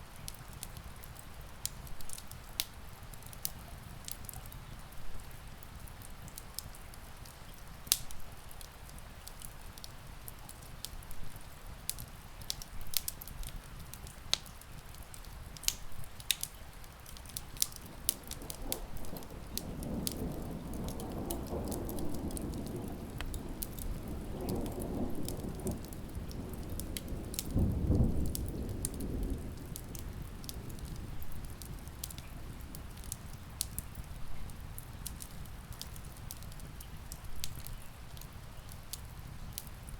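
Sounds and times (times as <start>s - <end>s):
steady rain: 0.0s - 39.9s
wood fire crackling: 0.0s - 39.9s
distant thunder rumble: 17.4s - 33.3s.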